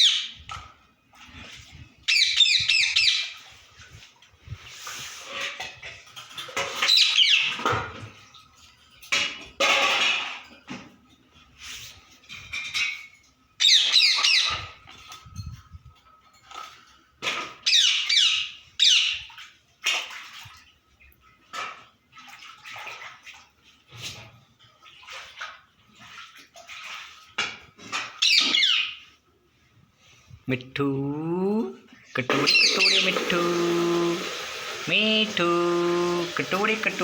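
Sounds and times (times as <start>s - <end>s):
parakeet squawking: 0.0s - 0.3s, 2.1s - 3.3s, 28.2s - 29.0s, 32.3s - 33.8s.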